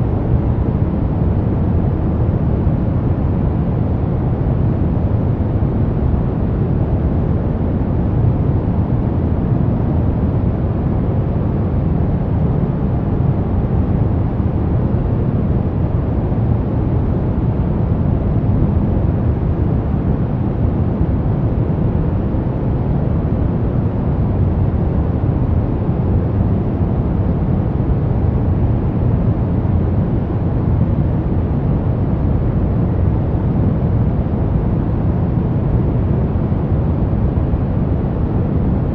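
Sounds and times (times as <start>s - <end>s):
brown noise rumbling hiss: 0.0s - 38.9s.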